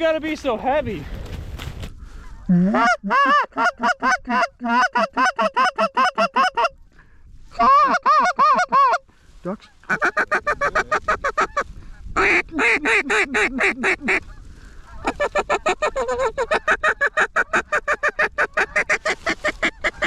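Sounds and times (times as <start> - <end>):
duck call quacking: 2.5 - 6.8, 7.6 - 9.0, 9.8 - 11.6, 12.2 - 20.0.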